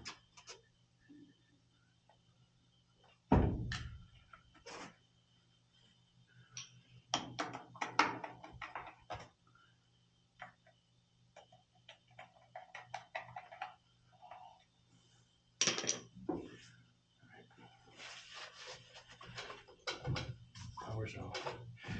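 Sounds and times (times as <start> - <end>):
tools clicking and knocking: 11.4 - 13.8
low steady hum: 13.2 - 21.9.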